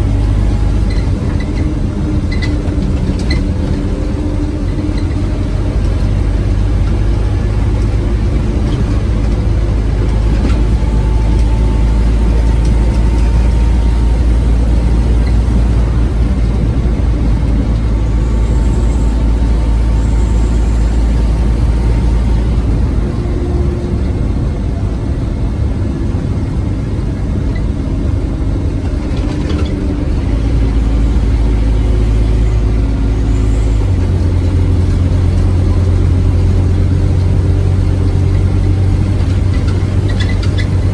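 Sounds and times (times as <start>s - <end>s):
bus engine rumbling: 0.0s - 40.9s.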